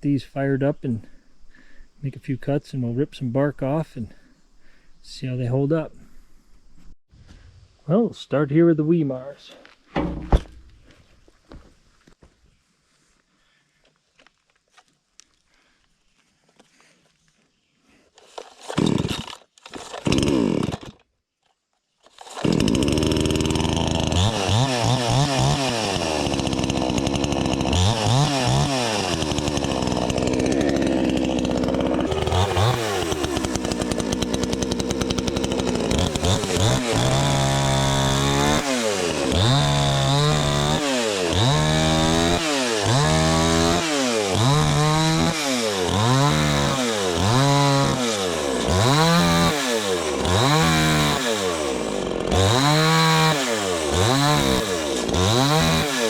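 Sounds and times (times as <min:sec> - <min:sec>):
chainsaw engine revving: 0:18.2 - 0:21.0, 0:22.1 - 0:56.0.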